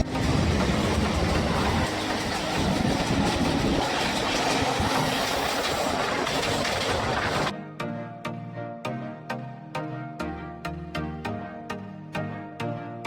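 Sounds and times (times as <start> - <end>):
passenger train running: 0.0 - 7.5
music: 0.0 - 13.0.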